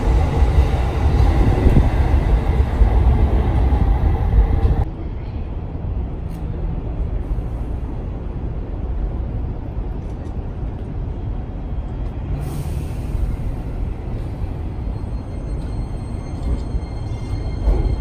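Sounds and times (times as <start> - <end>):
electric train rumbling: 0.0 - 18.0
train hiss: 12.4 - 14.4.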